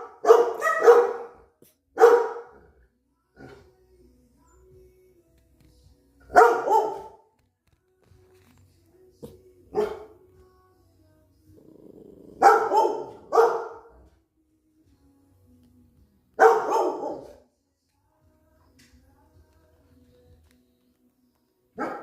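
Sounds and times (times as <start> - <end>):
dogs barking: 0.0 - 2.7, 6.3 - 7.2, 9.7 - 10.2, 12.3 - 14.0, 16.4 - 17.4, 21.8 - 22.0.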